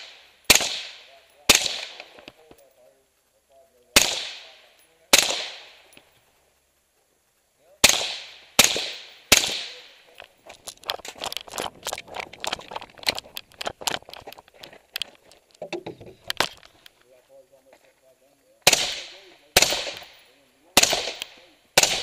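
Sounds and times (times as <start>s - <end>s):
rifle shots echoing: 0.0s - 2.5s, 3.8s - 6.1s, 7.8s - 10.3s, 18.6s - 22.0s
fainter sharp cracks: 0.0s - 2.7s, 3.8s - 6.3s, 7.8s - 17.1s, 18.6s - 22.0s.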